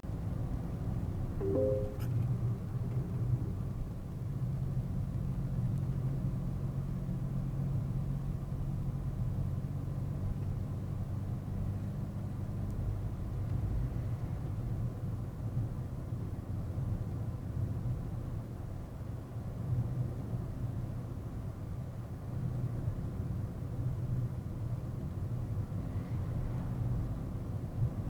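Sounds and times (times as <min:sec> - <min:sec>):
brief tone: 0:01.4 - 0:02.2.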